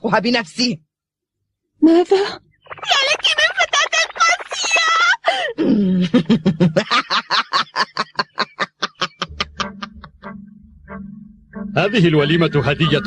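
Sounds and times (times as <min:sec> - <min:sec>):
cartoon girl mocking laugh: 0:09.2 - 0:10.3.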